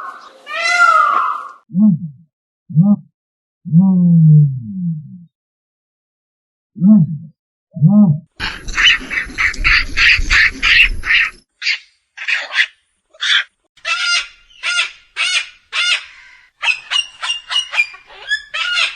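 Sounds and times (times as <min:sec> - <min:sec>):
bird calling harshly: 0:08.4 - 0:18.9.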